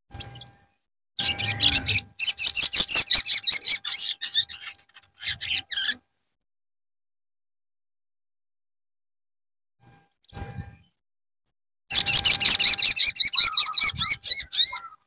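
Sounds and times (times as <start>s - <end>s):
bird raspy chattering call: 1.2s - 6.0s, 11.9s - 15.0s.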